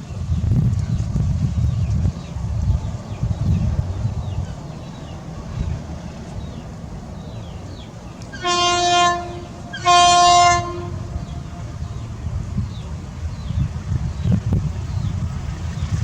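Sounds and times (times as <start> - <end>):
steady low rumble: 0.0 - 16.0
train horn blasts: 8.2 - 12.3.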